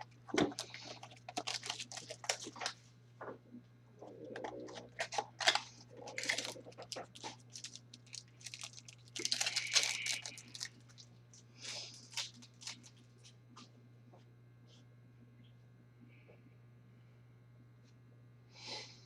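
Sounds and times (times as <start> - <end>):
foil wrapper crinkling and tearing: 0.0 - 2.8, 4.7 - 13.1
low electrical hum: 0.0 - 19.0.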